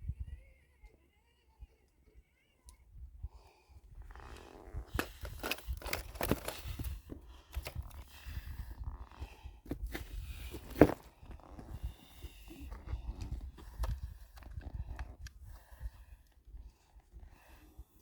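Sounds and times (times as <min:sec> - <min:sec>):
crunching over gravel and rock: 0:04.1 - 0:15.2.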